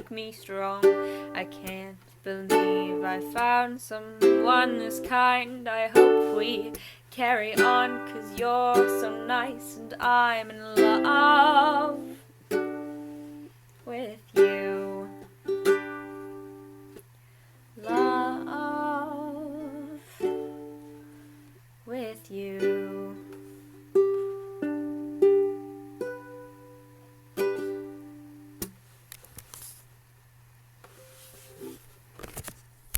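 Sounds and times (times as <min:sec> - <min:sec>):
person singing a wavering note: 0:00.0 - 0:12.2, 0:13.9 - 0:15.3, 0:17.8 - 0:20.6
ukulele strummed chords: 0:00.0 - 0:13.5, 0:14.3 - 0:17.0, 0:17.8 - 0:21.4, 0:22.2 - 0:28.7
steady low hum: 0:00.0 - 0:29.2.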